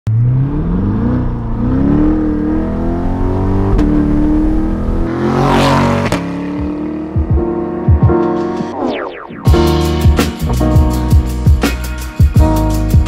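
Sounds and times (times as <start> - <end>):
car engine revving: 0.1 - 8.8.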